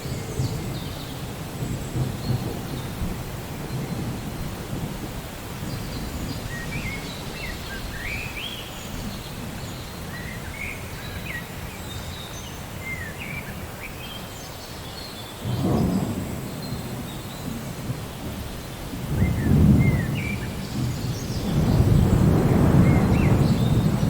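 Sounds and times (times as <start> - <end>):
steady rain: 0.0 - 24.0
thunder rumbling: 0.1 - 7.1, 15.5 - 24.0.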